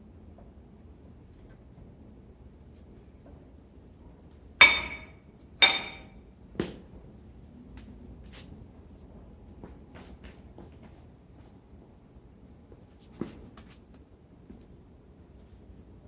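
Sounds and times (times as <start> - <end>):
metal-on-metal knocks: 4.6 - 6.2.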